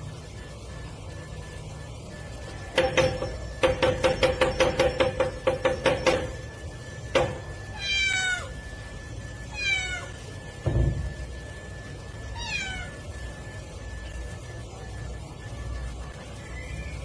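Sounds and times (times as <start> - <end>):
cat meowing: 7.7 - 8.5, 9.5 - 10.2, 12.3 - 13.0.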